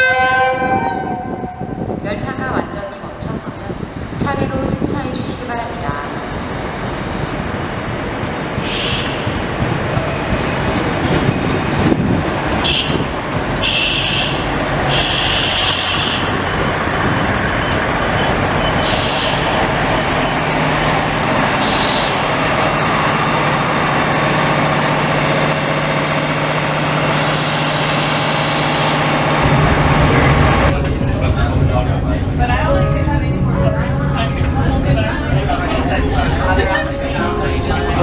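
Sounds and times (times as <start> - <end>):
train rumbling to a stop: 0.0 - 38.0
low engine hum: 19.4 - 38.0
high-pitched brake squeals: 27.2 - 29.0.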